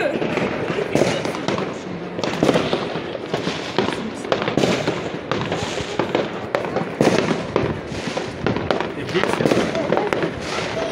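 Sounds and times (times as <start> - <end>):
fireworks bangs and crackles: 0.0 - 10.9.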